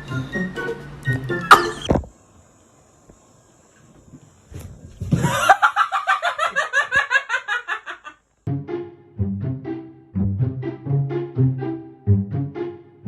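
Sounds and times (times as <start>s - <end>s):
music: 0.0s - 1.9s, 8.5s - 13.0s.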